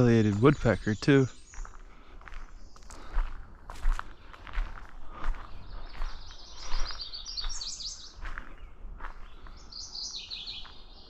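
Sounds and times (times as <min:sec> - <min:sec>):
songbird chirping: 0:00.0 - 0:11.0
soft footsteps: 0:01.6 - 0:07.6, 0:08.2 - 0:09.6.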